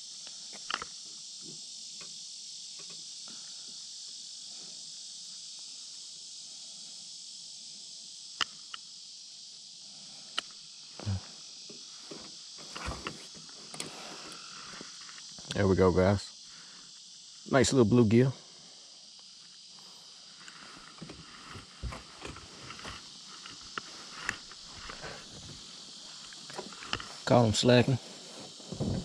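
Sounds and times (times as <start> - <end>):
insects buzzing: 0.0 - 29.0.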